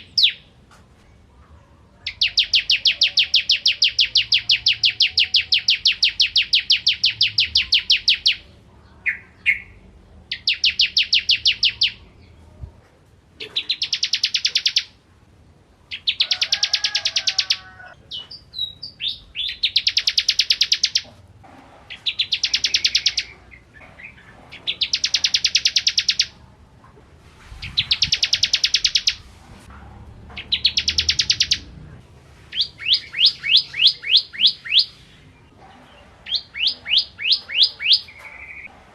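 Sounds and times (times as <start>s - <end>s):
bird trilling high chips: 27.8s - 29.2s, 32.5s - 35.0s, 36.2s - 38.7s.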